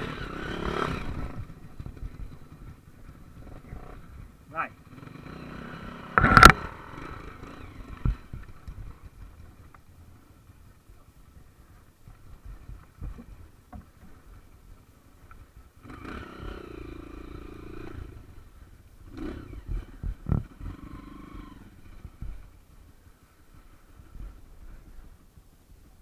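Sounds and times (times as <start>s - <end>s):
off-road engine revving: 0.0s - 9.2s, 15.8s - 22.5s.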